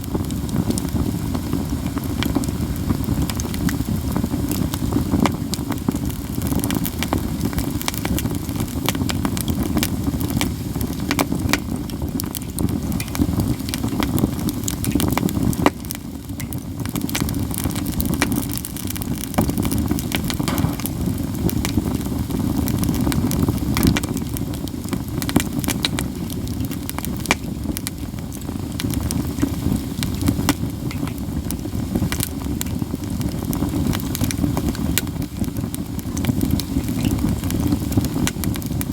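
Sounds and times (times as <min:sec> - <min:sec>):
campfire crackling and popping: 0:00.0 - 0:38.9
steady low rush: 0:20.5 - 0:22.1.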